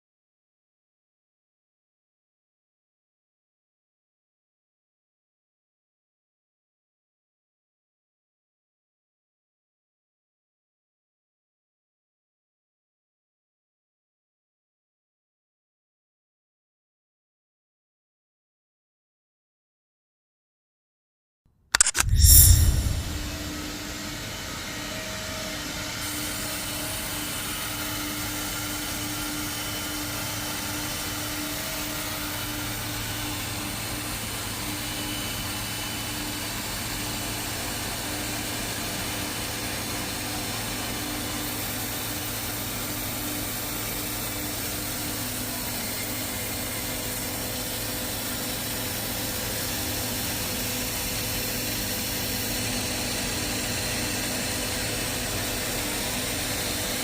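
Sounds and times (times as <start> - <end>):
boring machine whirring: 21.7 - 23.8
low hum: 21.8 - 24.0.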